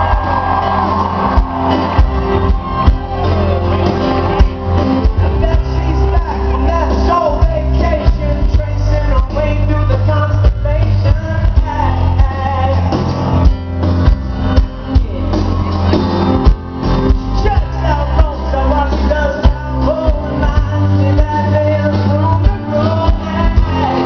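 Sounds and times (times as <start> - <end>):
person singing: 0.0 - 13.6, 14.3 - 24.0
rock band playing live: 0.0 - 24.0.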